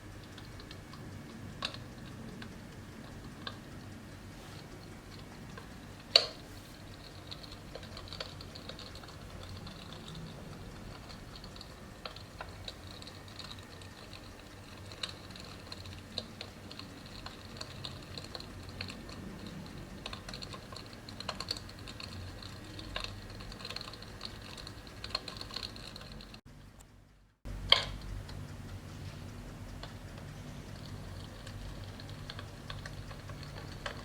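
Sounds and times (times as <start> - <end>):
faint steady hiss: 0.0 - 34.0
simulated fire crackling and popping: 0.0 - 34.0.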